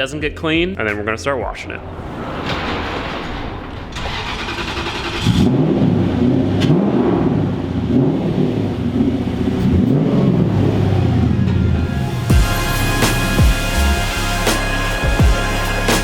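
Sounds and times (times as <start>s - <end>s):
engine revving: 4.0s - 16.0s.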